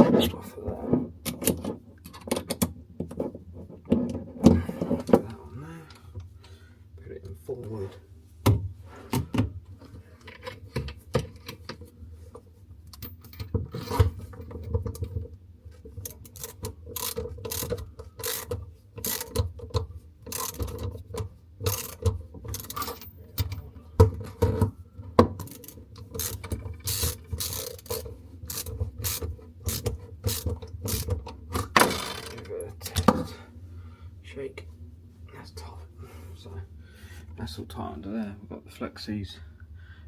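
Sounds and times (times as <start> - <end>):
ratchet spanner clicking: 16.0 - 19.5, 20.2 - 20.9, 21.6 - 23.6, 25.4 - 31.2.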